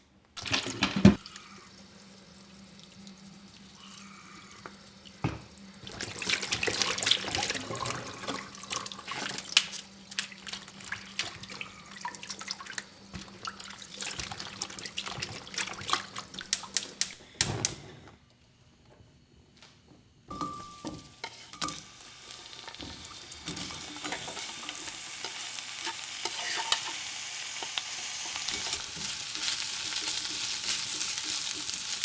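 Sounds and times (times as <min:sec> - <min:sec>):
dishes knocking and clinking: 0:00.4 - 0:01.2, 0:20.3 - 0:21.8.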